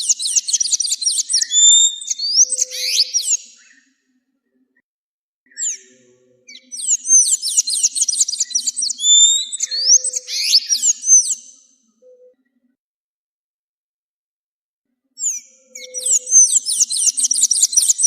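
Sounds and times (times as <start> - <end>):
bird call and warbling song: 0.0 - 4.0, 5.5 - 12.6, 15.2 - 18.0.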